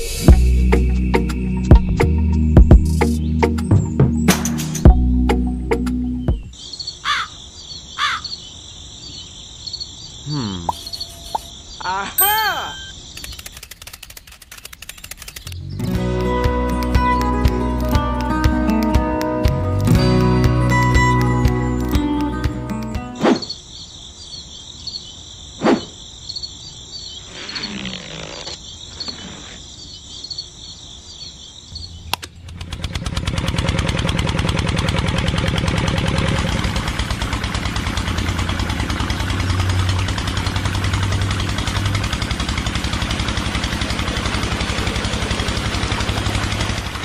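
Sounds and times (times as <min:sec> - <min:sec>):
sharp clicks: 0:12.8 - 0:15.7, 0:32.1 - 0:33.0
small engine running: 0:13.2 - 0:22.7, 0:32.3 - 0:47.0.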